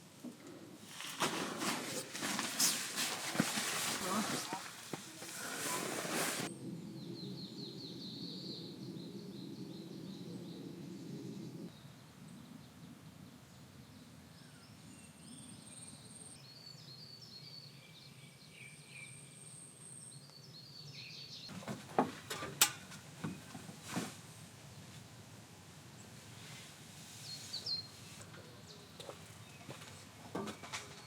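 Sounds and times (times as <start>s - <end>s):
outdoor background noise: 0.0s - 31.0s
small birds chirping: 27.1s - 31.0s.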